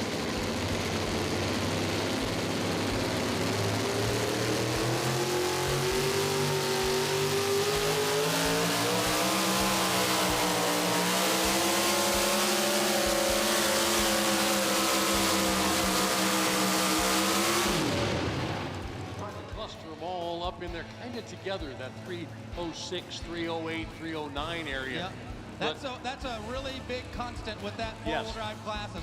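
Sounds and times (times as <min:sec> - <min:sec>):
pulling truck engine at full throttle: 0:00.0 - 0:20.5.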